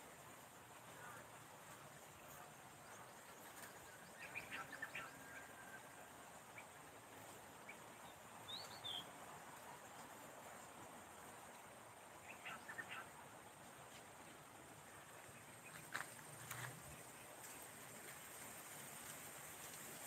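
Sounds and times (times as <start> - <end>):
faint bird chirps: 2.2 - 9.2, 12.2 - 13.2.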